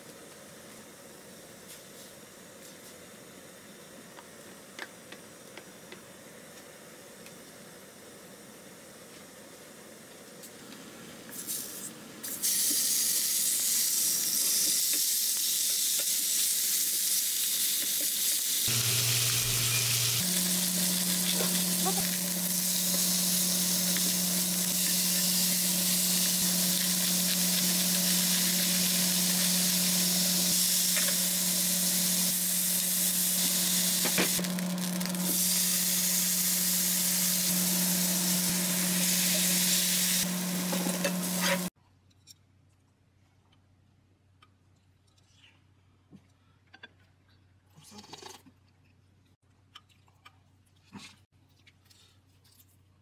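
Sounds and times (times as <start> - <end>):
meat sizzling in a frying pan: 12.4 - 41.7.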